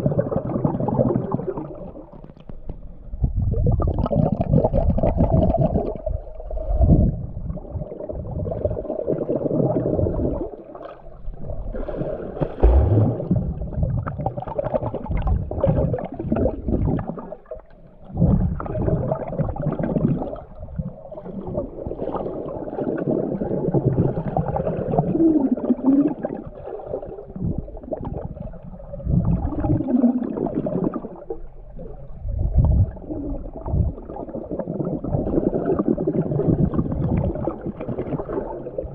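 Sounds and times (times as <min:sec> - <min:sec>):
underwater water rushing and gurgling: 0:00.0 - 0:38.9
short low warbles: 0:12.6 - 0:13.9.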